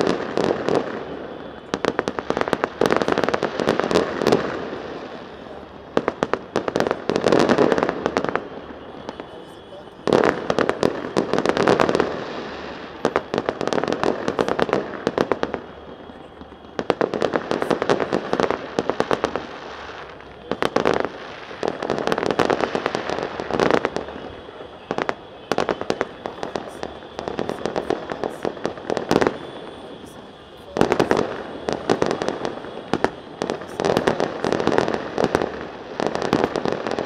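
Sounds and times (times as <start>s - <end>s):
fireworks crackling bangs: 0.0s - 37.0s.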